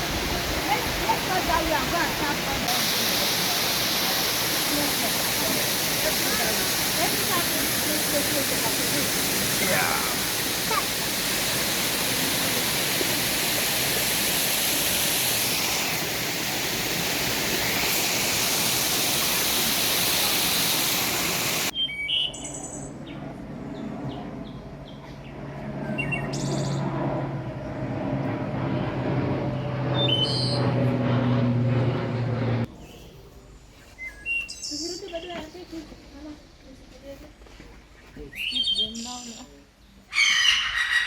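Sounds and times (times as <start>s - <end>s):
waterfall rushing: 0.0s - 21.7s
birds chirping: 37.9s - 41.0s.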